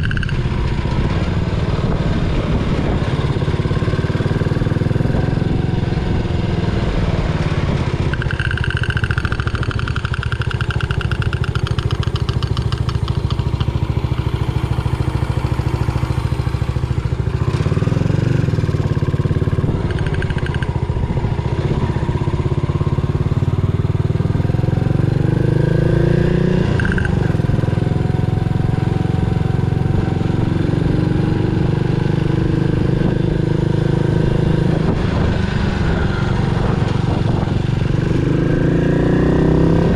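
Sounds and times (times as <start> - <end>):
motorcycle engine running: 0.0 - 39.9
high whine: 6.8 - 21.6.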